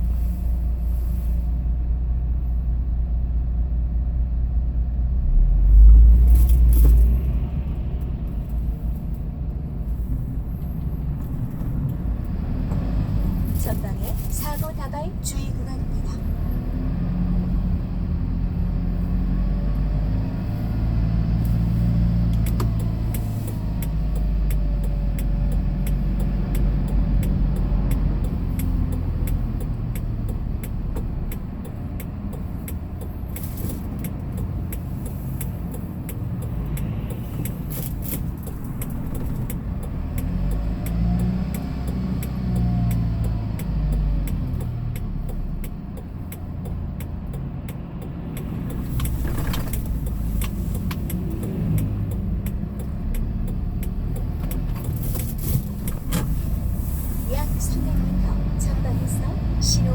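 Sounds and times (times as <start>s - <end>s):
truck engine and road rumble: 0.0s - 59.9s.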